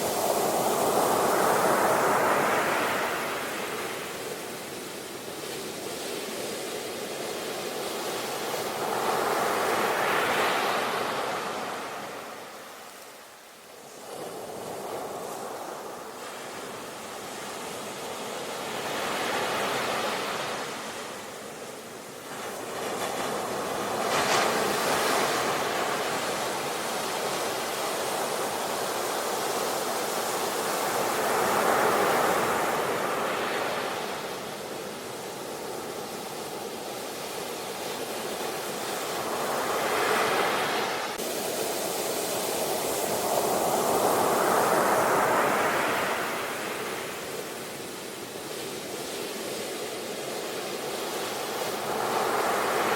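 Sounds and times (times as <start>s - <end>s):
ocean waves crashing: 0.0s - 4.5s, 38.4s - 52.9s.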